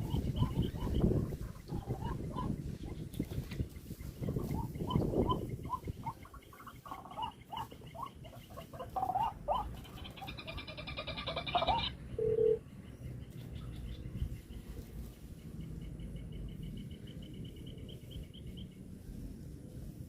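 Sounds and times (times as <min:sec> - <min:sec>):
waterhen calling: 0:00.0 - 0:12.6.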